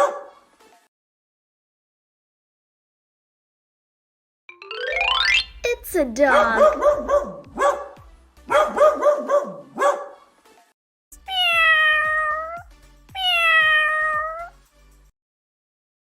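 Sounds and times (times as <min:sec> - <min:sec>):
dog barking: 0:00.0 - 0:00.4, 0:06.3 - 0:10.3
cat meowing: 0:11.3 - 0:12.6, 0:13.2 - 0:14.6.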